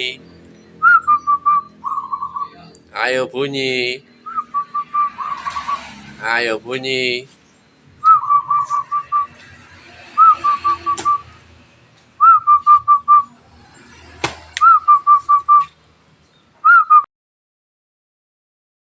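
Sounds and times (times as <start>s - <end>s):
dove cooing: 0.8s - 2.8s, 4.2s - 6.1s, 8.0s - 9.4s, 10.0s - 11.4s
sharp knocks: 14.2s - 14.5s.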